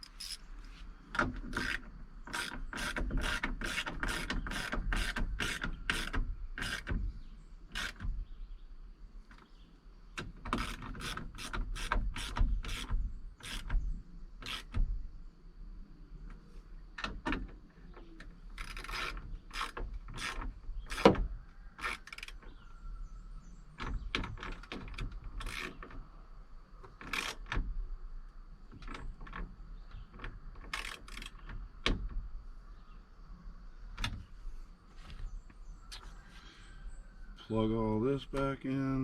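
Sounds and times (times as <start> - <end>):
ratchet wrench clicking: 1.5 - 7.0, 14.4 - 14.8.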